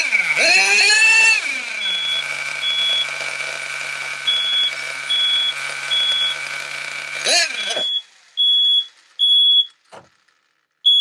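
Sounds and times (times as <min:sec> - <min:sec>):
small model car engine revving: 0:00.0 - 0:11.0
smoke alarm beeping: 0:01.9 - 0:03.2, 0:04.2 - 0:06.5, 0:07.6 - 0:09.8.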